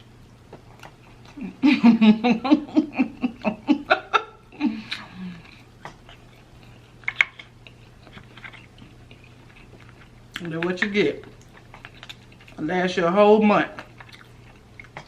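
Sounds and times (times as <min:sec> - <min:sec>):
woman laughing: 0:01.4 - 0:05.4.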